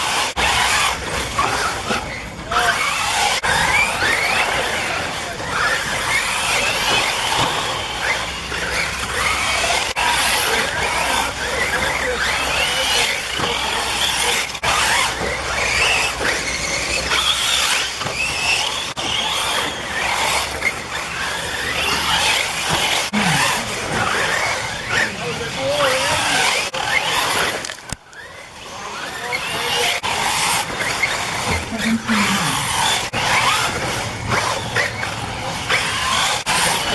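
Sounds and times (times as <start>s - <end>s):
rc car motors whining: 0.0s - 36.9s
tires scrabbling on dirt: 0.0s - 36.9s.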